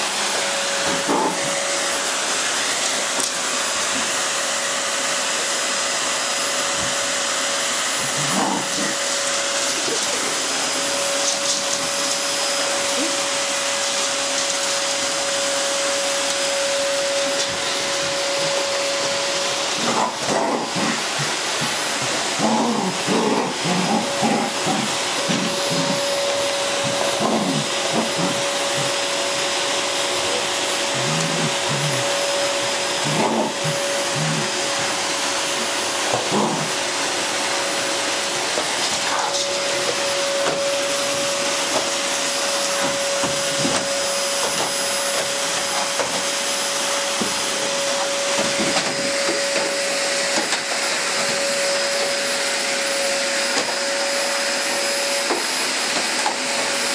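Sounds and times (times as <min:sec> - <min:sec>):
vacuum cleaner running: 0:00.0 - 0:56.9.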